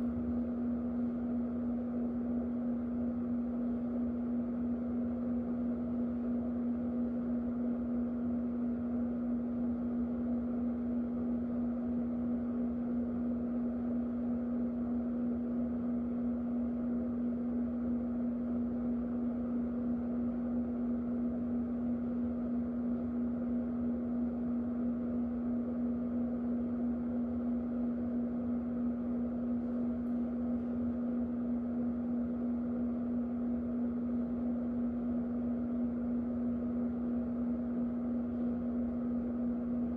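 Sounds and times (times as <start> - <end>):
electric fan running: 0.0 - 39.9.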